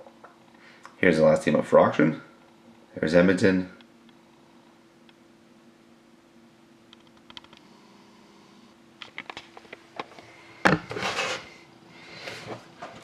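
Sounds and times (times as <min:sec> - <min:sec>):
scraping rustle: 0:10.9 - 0:11.6.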